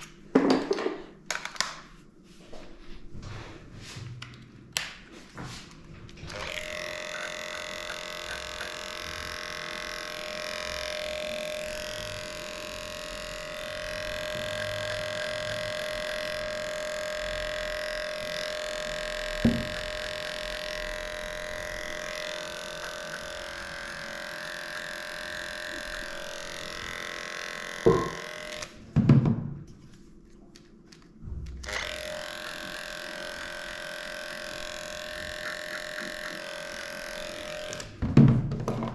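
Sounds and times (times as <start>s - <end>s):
electric clippers humming: 6.1s - 28.8s, 31.6s - 38.1s.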